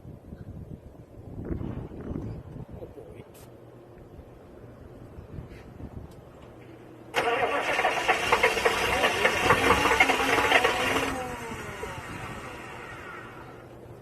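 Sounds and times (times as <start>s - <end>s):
diesel engine cold-starting: 7.1s - 13.7s.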